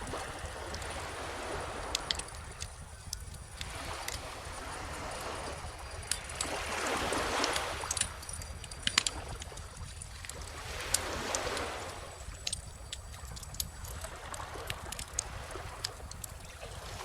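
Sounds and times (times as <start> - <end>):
bonfire crackling: 0.0 - 5.1, 5.8 - 16.8
ocean waves washing in: 0.0 - 8.4, 10.3 - 12.9.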